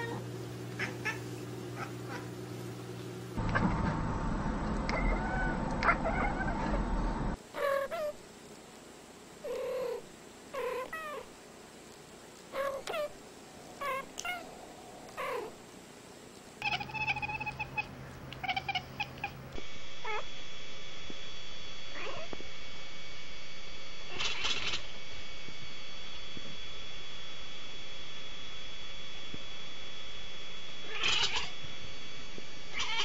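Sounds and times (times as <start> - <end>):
low background hum: 0.0 - 33.0
cats meowing: 0.8 - 1.2, 4.9 - 6.8, 12.6 - 13.2, 13.8 - 15.6, 16.6 - 19.4, 24.1 - 24.8, 30.9 - 31.5, 32.7 - 33.0
cat yowls: 4.9 - 6.8, 12.6 - 13.2, 16.6 - 19.3, 24.1 - 24.8, 30.9 - 31.5, 32.7 - 33.0.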